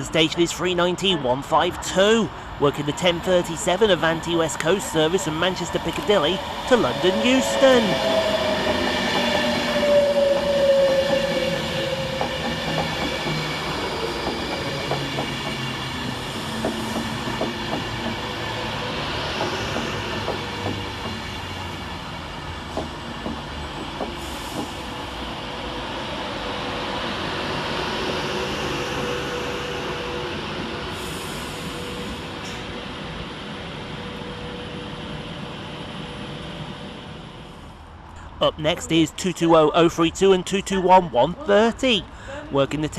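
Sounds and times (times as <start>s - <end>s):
train hum: 0.0s - 42.9s
electric train whine: 1.7s - 38.4s
train wheels clicking over rail joints: 8.0s - 18.6s, 19.2s - 21.9s, 22.6s - 25.3s.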